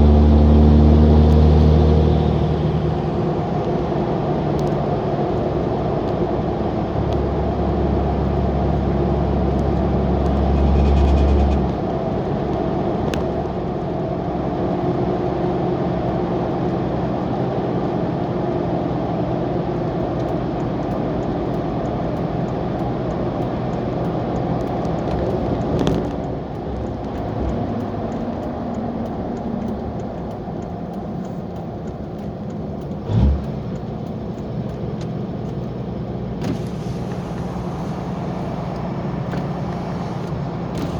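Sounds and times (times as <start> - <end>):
diesel truck exhaust drone: 0.0 - 16.6, 25.6 - 40.9.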